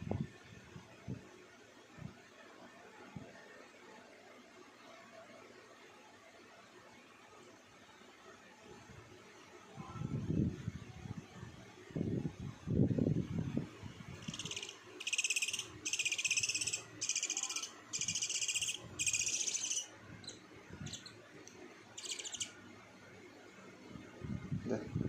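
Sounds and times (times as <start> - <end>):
owl raspy calls: 14.2 - 21.1, 22.0 - 22.5.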